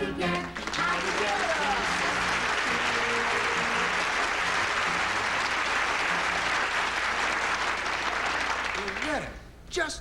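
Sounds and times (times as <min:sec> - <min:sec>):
band playing: 0:00.0 - 0:07.8
audience applauding: 0:00.4 - 0:09.4.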